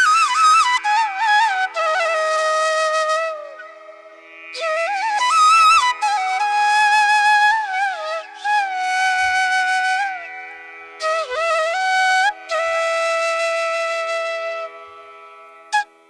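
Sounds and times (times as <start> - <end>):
flute playing held notes: 0.0 - 10.3, 11.0 - 15.1, 15.7 - 16.0.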